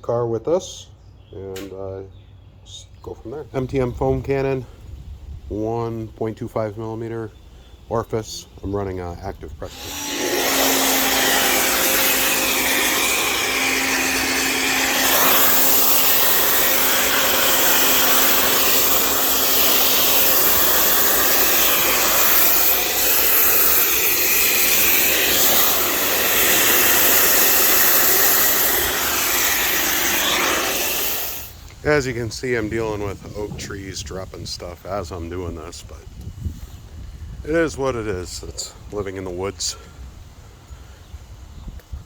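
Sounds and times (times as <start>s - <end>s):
pressure washer spraying: 9.7s - 31.7s.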